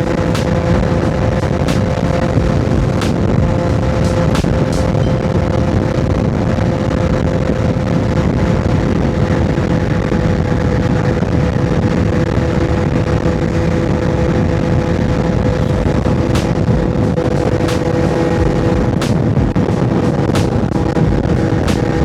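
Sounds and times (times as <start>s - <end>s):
rumbling wind noise: 0.0s - 22.0s.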